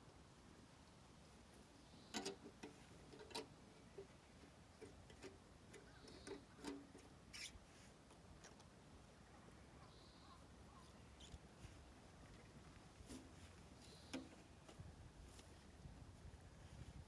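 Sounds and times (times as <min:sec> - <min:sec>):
faint clicks and knocks: 0:02.1 - 0:07.2, 0:12.2 - 0:14.9.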